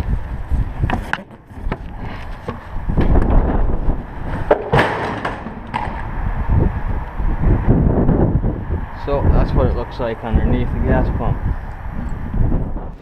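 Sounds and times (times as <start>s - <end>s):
wind buffeting microphone: 0.0s - 13.0s
clattering scraping knocks: 0.8s - 6.2s
loud clank: 4.4s - 6.1s.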